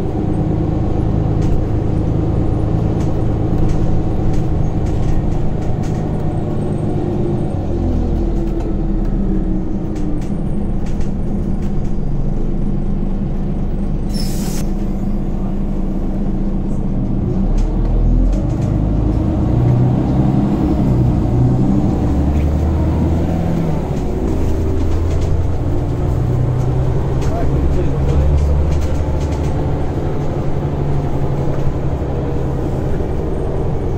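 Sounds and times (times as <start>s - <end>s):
bus engine under load: 0.0s - 33.9s
short hiss: 14.1s - 14.7s.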